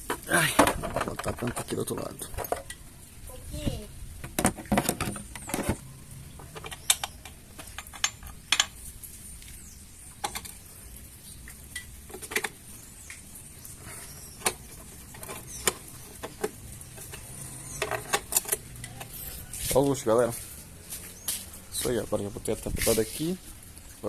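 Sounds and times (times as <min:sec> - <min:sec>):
hand tools clicking and tapping metal: 0:04.2 - 0:08.8, 0:10.2 - 0:10.6, 0:11.5 - 0:20.5.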